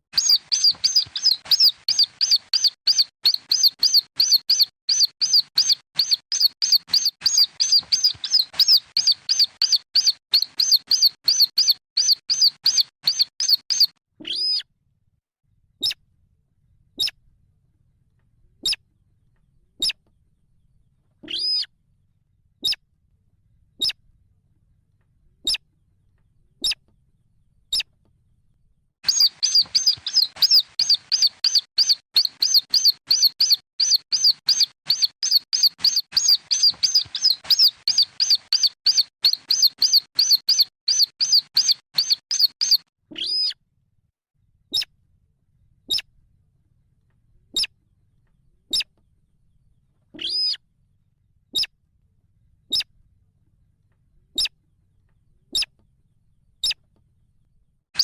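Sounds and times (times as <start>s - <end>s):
bird chicks peeping: 0.1s - 14.6s, 29.0s - 43.6s.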